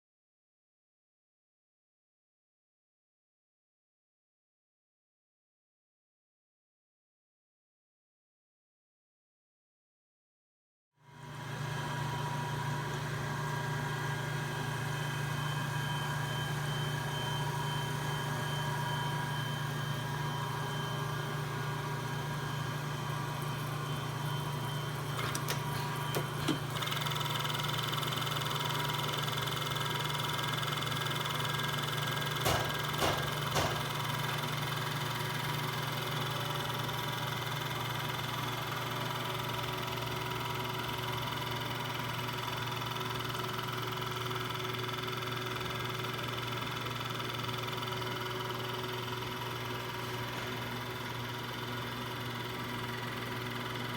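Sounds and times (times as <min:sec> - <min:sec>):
grinder humming and whining: 0:11.2 - 0:53.9.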